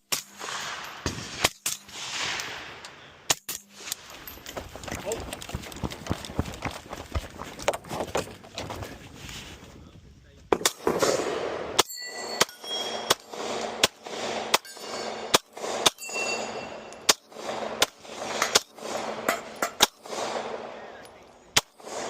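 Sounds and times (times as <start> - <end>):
gunshots with echo: 0.1 - 3.4, 10.5 - 22.0.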